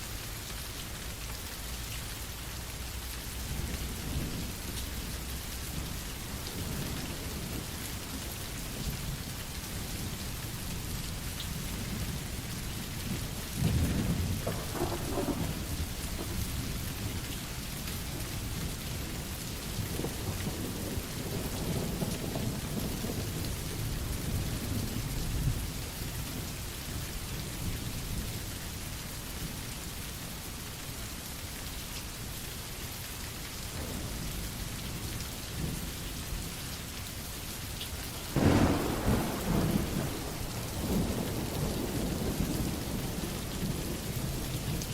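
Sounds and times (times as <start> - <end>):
steady rain: 0.0 - 44.9
thunder rolling: 13.2 - 17.2, 38.3 - 44.8.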